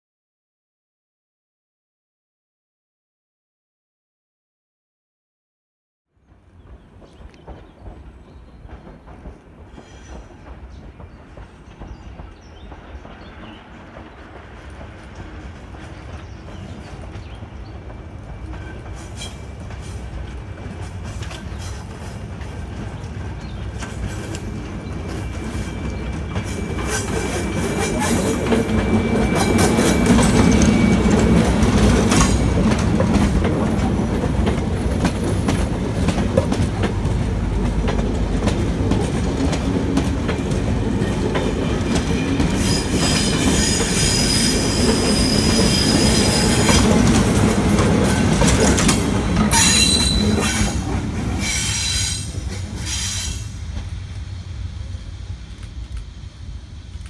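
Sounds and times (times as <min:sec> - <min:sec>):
locomotive passing: 0:06.3 - 0:57.0
wheels clicking over rail joints: 0:06.4 - 0:43.9, 0:44.8 - 0:51.5
wheels squealing on curve: 0:42.6 - 0:46.9, 0:49.5 - 0:53.5.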